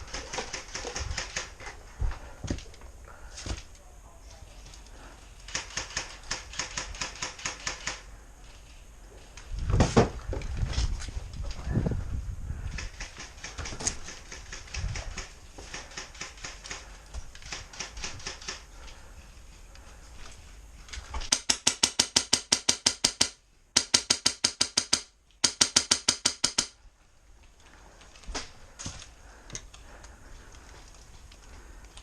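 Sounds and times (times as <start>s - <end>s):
airsoft guns firing full auto: 0.0s - 1.6s, 5.5s - 8.0s, 21.3s - 26.7s.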